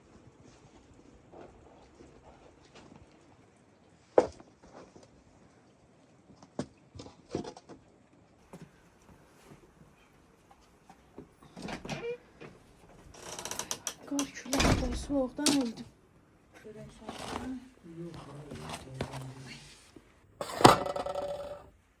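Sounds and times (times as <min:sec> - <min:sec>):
clattering: 0:20.4 - 0:21.7.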